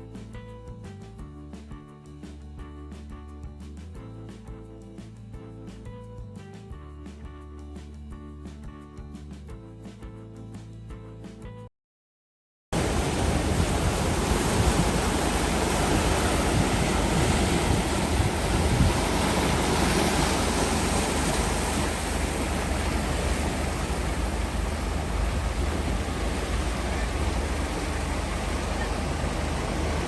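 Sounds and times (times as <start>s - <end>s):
sea surf washing on shore: 12.8s - 30.0s
wind buffeting microphone: 12.8s - 30.0s.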